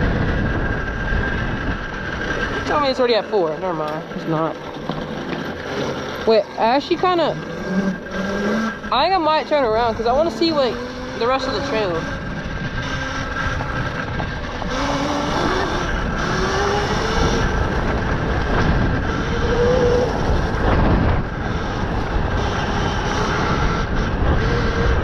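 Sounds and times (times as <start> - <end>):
electric motor whining: 0.0 - 25.0
wind on microphone: 0.0 - 25.0.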